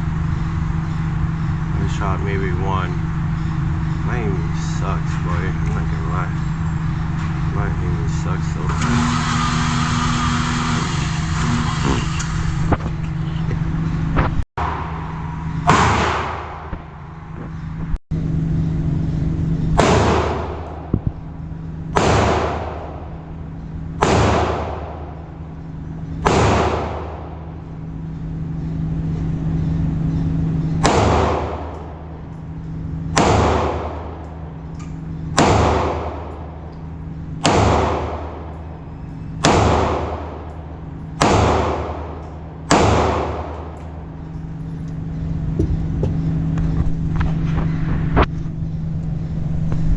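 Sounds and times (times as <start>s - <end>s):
steady low hum: 0.0s - 49.9s
pistol shots: 14.6s - 17.0s, 19.8s - 21.3s, 21.9s - 23.3s, 24.0s - 25.5s, 26.2s - 27.6s, 30.8s - 32.4s, 33.1s - 34.5s, 35.3s - 36.6s, 37.4s - 38.7s, 39.4s - 44.2s.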